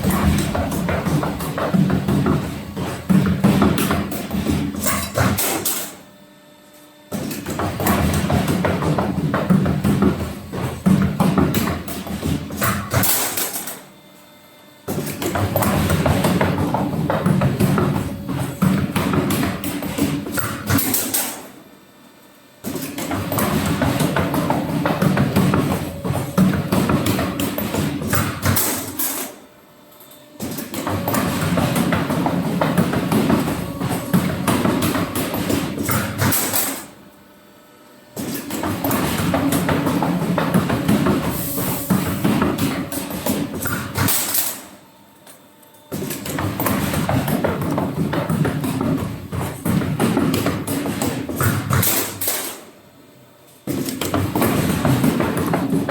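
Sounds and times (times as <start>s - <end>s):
machines clattering: 0.0s - 6.0s, 22.6s - 29.4s, 30.4s - 37.0s, 38.2s - 44.8s.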